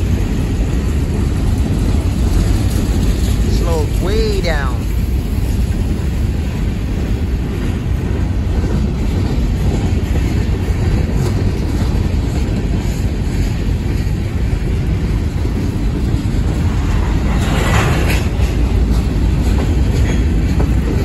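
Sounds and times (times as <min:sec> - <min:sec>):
freight train rolling past: 0:00.0 - 0:21.0.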